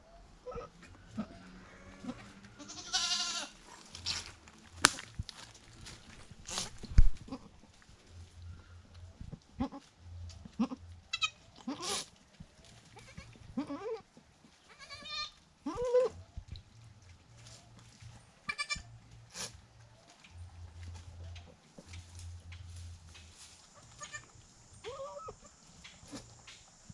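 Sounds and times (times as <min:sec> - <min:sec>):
goat kid bleating: 0:00.4 - 0:04.3, 0:09.6 - 0:12.1, 0:12.9 - 0:16.2, 0:18.4 - 0:18.9, 0:23.8 - 0:25.5.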